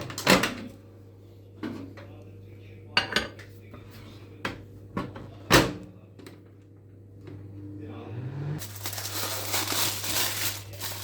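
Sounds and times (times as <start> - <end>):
dishes and cutlery clinking: 2.9 - 3.5.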